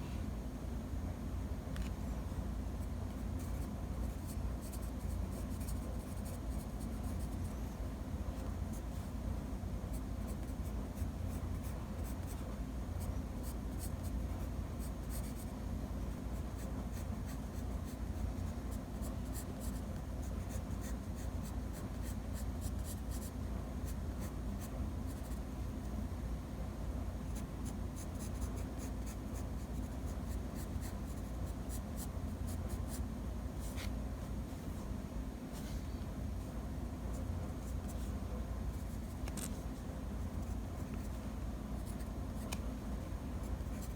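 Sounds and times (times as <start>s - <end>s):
pencil scratching on paper: 3.4s - 7.5s.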